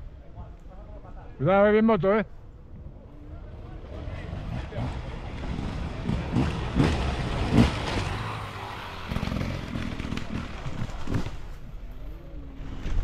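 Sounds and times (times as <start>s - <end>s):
motorcycle engine revving: 3.6s - 11.4s.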